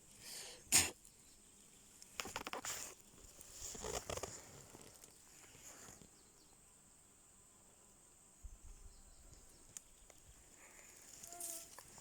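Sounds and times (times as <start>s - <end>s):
faint rustling in grass: 1.5s - 6.4s, 8.7s - 12.0s
high insect drone: 10.5s - 12.0s.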